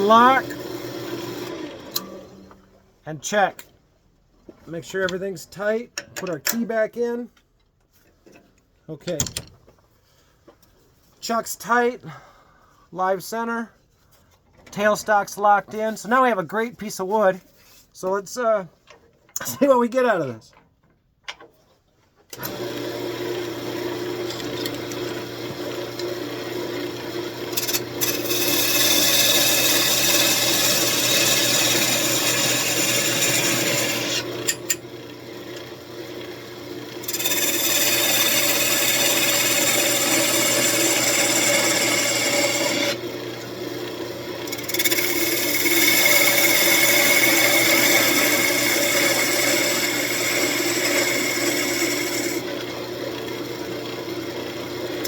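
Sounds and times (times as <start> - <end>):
wood lathe motor hum: 0.0 - 2.6, 22.4 - 55.0
turning tool scraping wood: 23.5 - 34.8, 35.6 - 43.5, 44.4 - 53.3.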